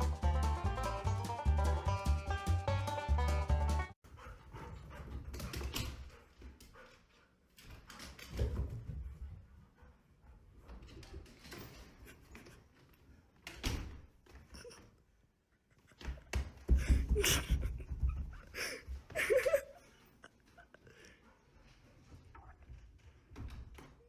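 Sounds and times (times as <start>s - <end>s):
knocks and thuds: 16.0s - 18.6s.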